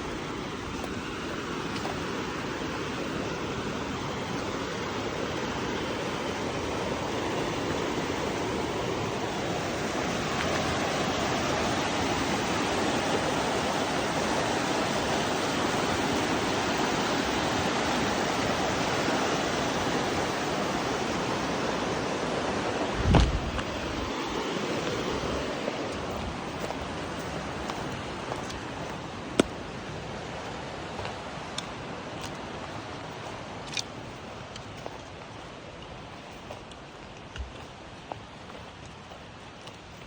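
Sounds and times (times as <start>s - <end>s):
rushing flowing water: 0.0s - 40.0s
low thump: 23.0s - 23.6s.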